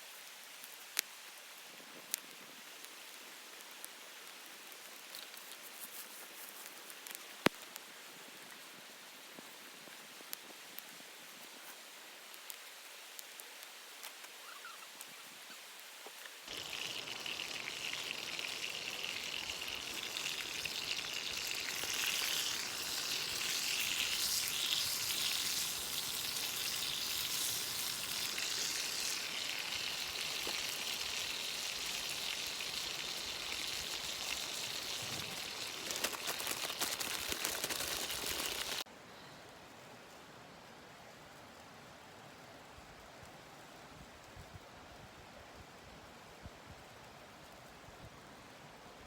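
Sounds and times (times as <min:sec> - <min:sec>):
food sizzling in a pan: 0:16.5 - 0:38.9.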